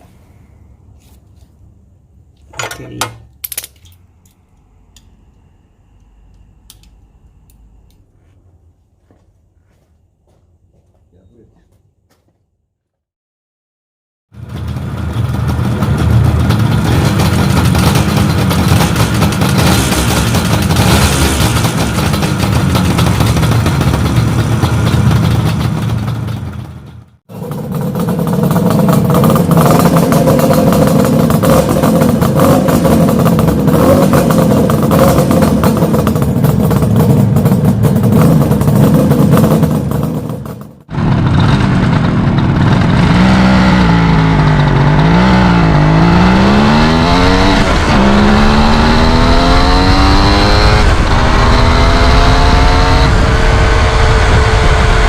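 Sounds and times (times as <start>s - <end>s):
two-stroke motorcycle engine revving: 14.8s - 26.6s, 27.3s - 55.0s.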